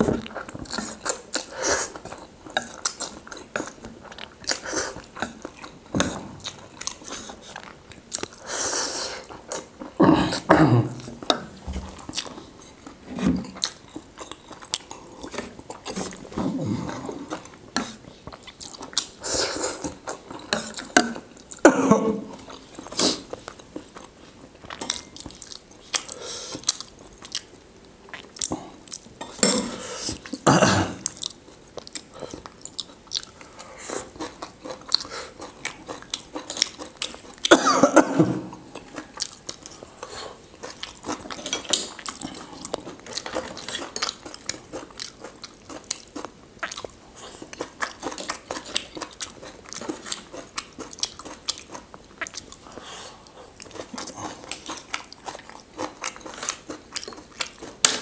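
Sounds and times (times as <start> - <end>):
chewing and biting food: 11.4 - 21.6, 22.4 - 29.3, 31.0 - 37.5, 38.5 - 58.0.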